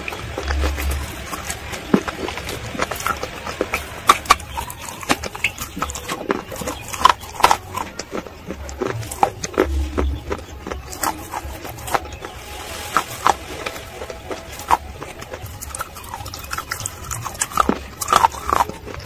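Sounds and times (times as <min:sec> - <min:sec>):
crunching chewing: 0:00.0 - 0:19.0.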